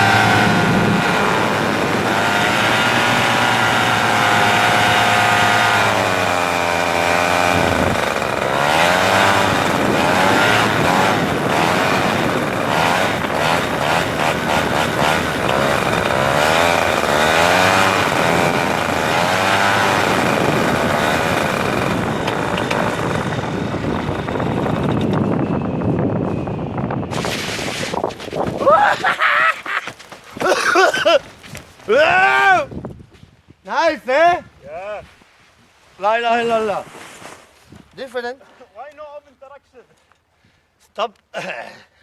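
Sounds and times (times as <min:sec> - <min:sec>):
motor engine running: 0:00.0 - 0:28.7.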